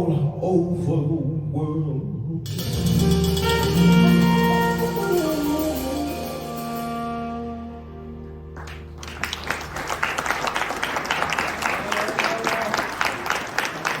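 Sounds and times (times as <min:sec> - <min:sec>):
held music chord: 0:02.5 - 0:09.0
audience applauding: 0:08.6 - 0:14.0.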